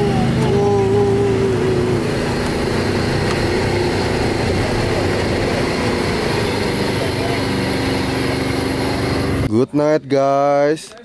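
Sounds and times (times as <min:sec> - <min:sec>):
whine sliding down in pitch: 0:00.0 - 0:09.5
off-road vehicle engine under load: 0:00.0 - 0:09.6.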